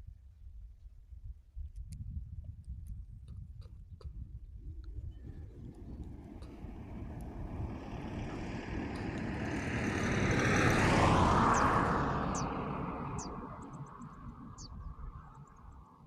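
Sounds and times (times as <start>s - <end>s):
vehicle passing by: 5.2s - 16.0s.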